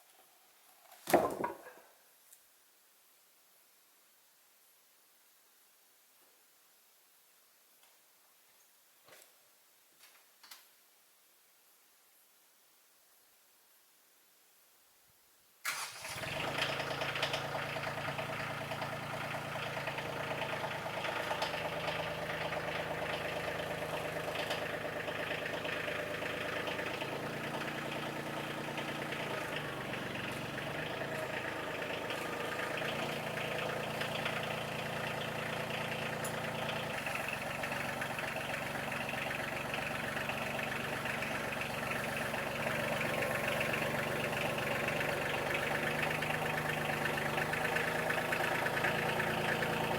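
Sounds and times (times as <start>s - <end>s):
small gas engine running: 15.7s - 49.9s.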